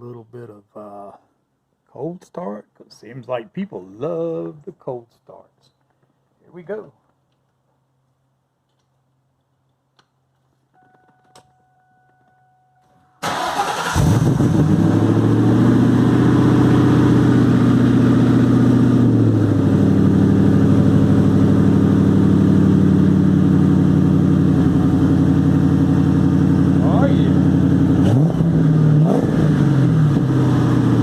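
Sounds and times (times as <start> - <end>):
faint steady tone: 10.7 - 13.2
car engine fast idle: 13.2 - 14.8.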